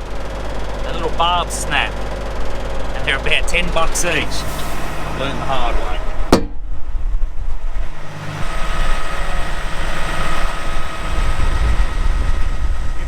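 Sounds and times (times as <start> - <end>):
truck diesel engine running: 0.0 - 13.0
sharp bang: 6.3 - 6.7.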